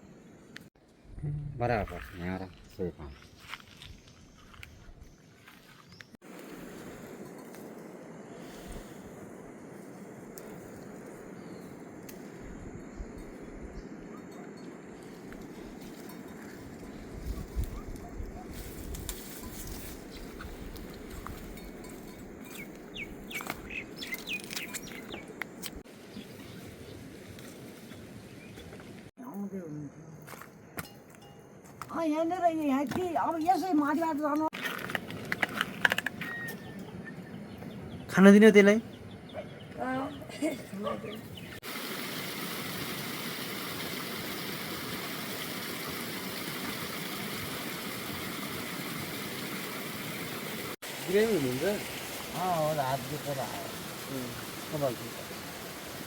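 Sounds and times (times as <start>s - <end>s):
bird chirping: 20.1s - 25.5s, 36.1s - 41.6s
low outdoor rush: 34.1s - 56.0s.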